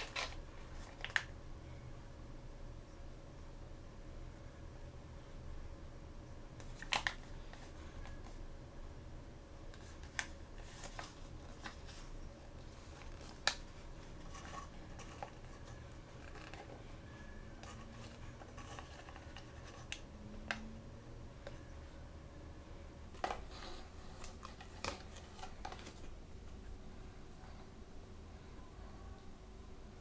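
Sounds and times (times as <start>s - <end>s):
plastic packaging rustling: 0.0s - 1.3s, 9.8s - 17.0s, 17.6s - 20.1s, 23.1s - 26.2s
plastic packaging clicks and snaps: 6.6s - 7.3s, 13.0s - 13.7s.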